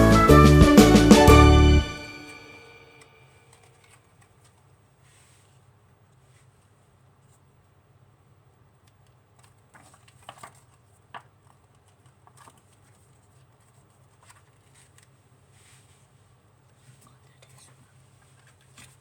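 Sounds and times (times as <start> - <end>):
low room hum: 1.4 - 19.0
soft handling clicks and crinkles: 3.4 - 7.8, 8.5 - 19.0.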